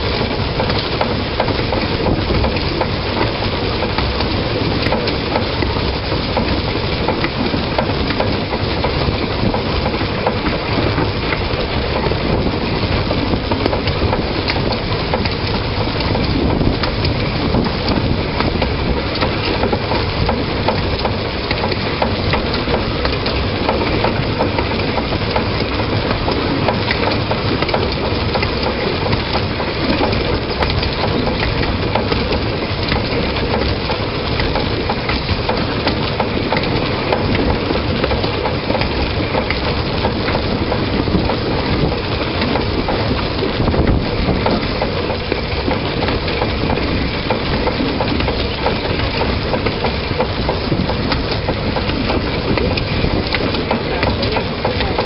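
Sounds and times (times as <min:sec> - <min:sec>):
train wheels rattling and rumbling: 0:00.0 - 0:55.0.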